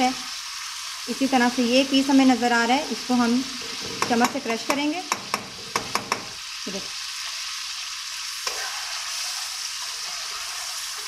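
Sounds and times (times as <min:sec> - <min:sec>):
food sizzling in a pan: 0:00.0 - 0:11.0
metal spoon clinking against pan: 0:03.6 - 0:06.3.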